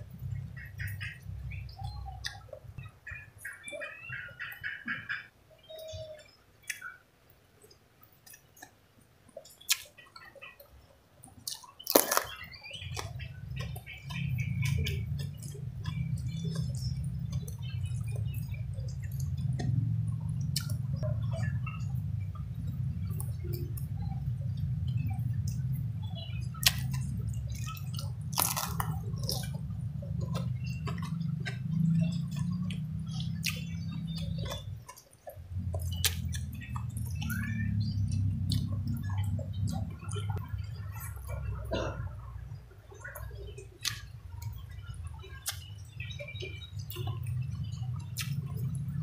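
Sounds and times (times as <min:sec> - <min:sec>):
steady low hum: 0:00.0 - 0:05.1, 0:12.3 - 0:49.0
chewing and lip smacks: 0:01.8 - 0:02.5, 0:07.7 - 0:10.6, 0:11.2 - 0:49.0.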